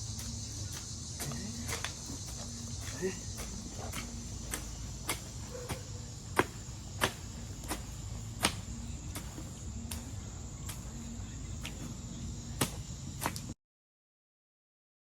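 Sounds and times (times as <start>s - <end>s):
crickets trilling: 0.0s - 13.6s.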